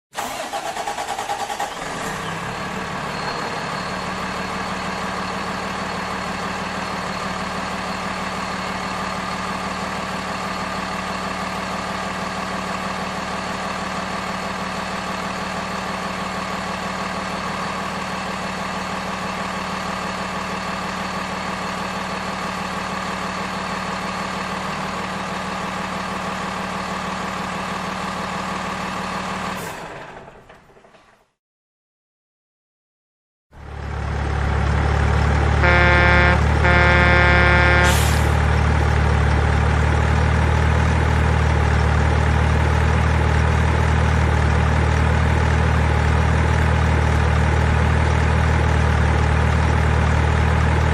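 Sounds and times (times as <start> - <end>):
model truck engine idling: 0.2 - 29.5, 33.6 - 50.9.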